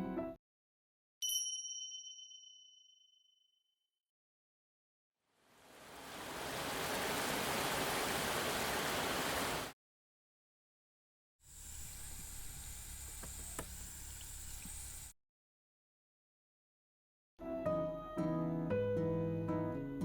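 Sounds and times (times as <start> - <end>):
rushing water-like noise: 5.5 - 9.7.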